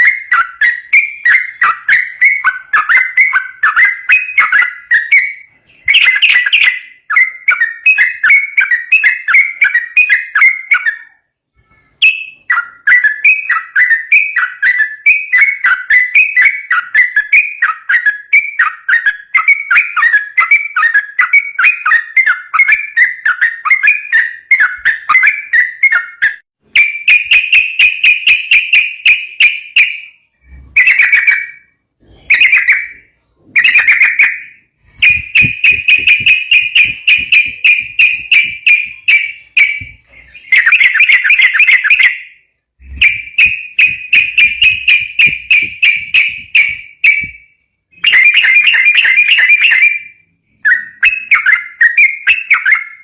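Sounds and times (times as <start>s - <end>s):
bird singing rattling song: 0.0s - 53.0s.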